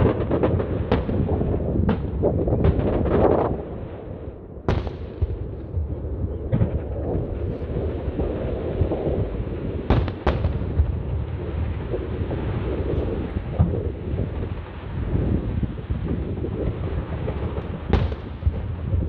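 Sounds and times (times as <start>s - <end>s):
fireworks bangs: 0.0s - 19.0s
low rumble: 4.4s - 9.9s.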